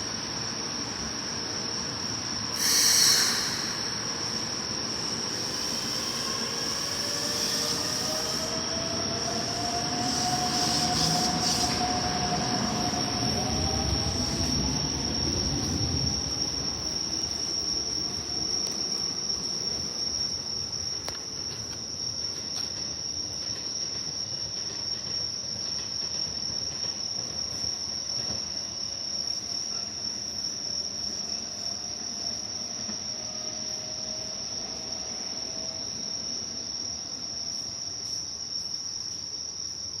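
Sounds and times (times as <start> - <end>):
distant train rumble: 0.0 - 30.2
crickets trilling: 0.0 - 40.0.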